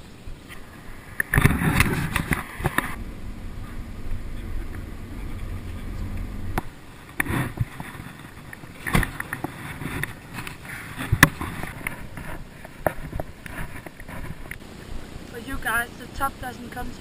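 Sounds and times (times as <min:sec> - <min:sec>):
car road rumble: 0:00.0 - 0:15.8
knocks and rustling: 0:01.2 - 0:14.6.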